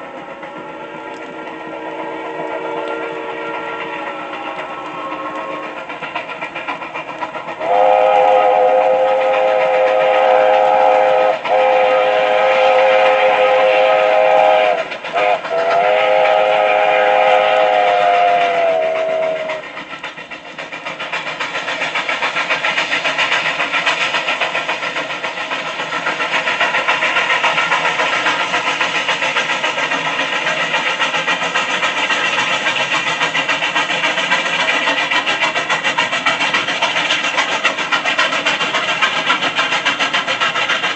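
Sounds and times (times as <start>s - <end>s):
passing train rumble and clatter: 0.0s - 40.9s
train horn chime: 1.0s - 4.2s.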